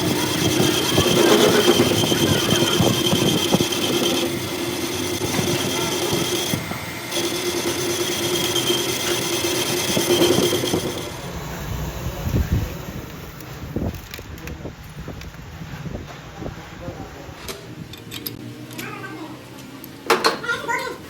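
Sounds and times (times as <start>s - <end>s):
metal scraping and crackling: 0.0s - 12.0s
metalworking machine whine: 0.0s - 14.9s.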